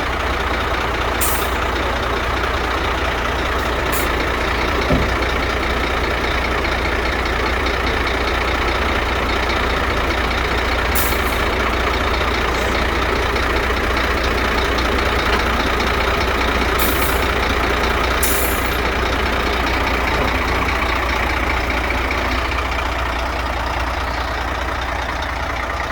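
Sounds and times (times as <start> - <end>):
truck diesel engine running: 0.0 - 25.9
air hissing: 18.2 - 18.8.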